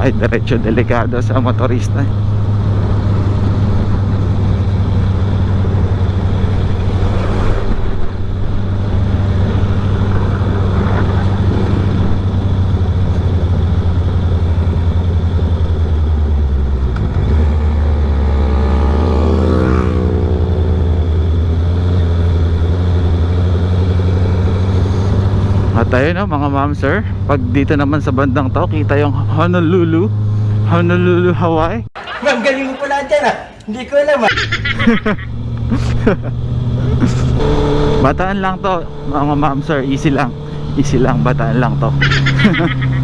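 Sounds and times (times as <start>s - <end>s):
motorcycle engine running: 0.0s - 31.4s, 34.4s - 43.0s
wind noise: 2.1s - 16.0s.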